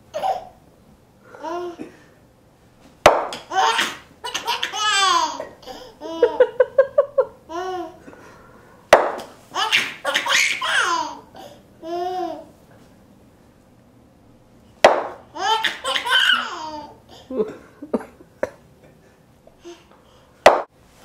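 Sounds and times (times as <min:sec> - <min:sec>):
child laughing: 0:03.5 - 0:08.0, 0:15.4 - 0:18.2.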